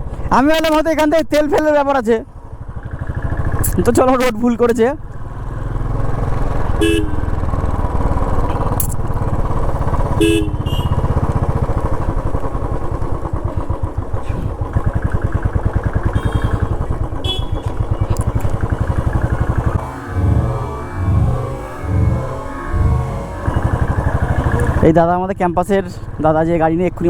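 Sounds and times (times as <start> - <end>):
motorcycle engine running: 2.3 - 27.0
horn beeps: 10.1 - 11.2, 16.0 - 24.8.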